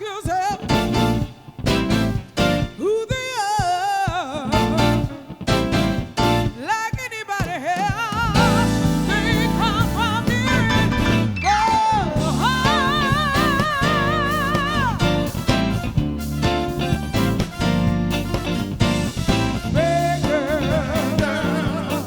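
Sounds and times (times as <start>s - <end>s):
live soul band playing: 0.0s - 7.0s, 7.6s - 22.0s
person singing wordless vocal runs: 2.8s - 5.4s, 6.5s - 15.3s, 19.6s - 22.0s.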